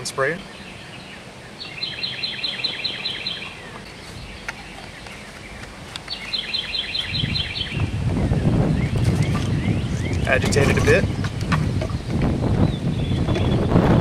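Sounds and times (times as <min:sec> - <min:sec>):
songbird chirping: 0:00.0 - 0:13.9
wind rumble on microphone: 0:06.8 - 0:14.0.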